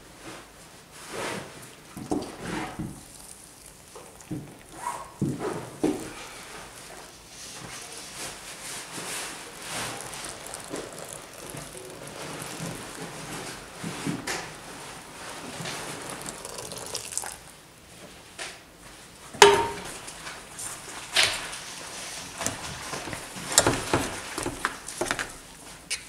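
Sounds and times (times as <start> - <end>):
hot water pouring into oats: 2.0 - 6.1, 7.6 - 17.5, 19.6 - 25.6
spoon scraping and stirring in bowl: 8.9 - 14.2, 15.2 - 17.4, 19.4 - 25.5.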